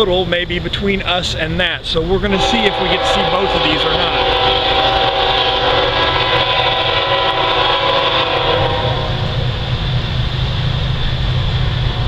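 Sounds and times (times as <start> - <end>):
steady low rumble: 1.4 - 12.0
locomotive horn chord: 2.3 - 9.5.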